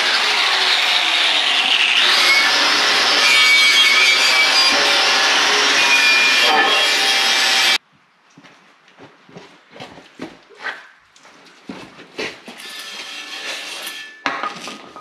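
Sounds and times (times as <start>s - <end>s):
power grinder grinding steel: 0.0s - 7.8s, 12.5s - 14.8s.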